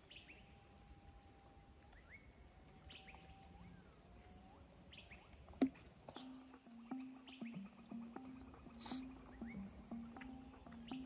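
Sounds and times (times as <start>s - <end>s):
birds whistling: 1.9s - 11.0s
high bird chirps: 6.1s - 11.0s.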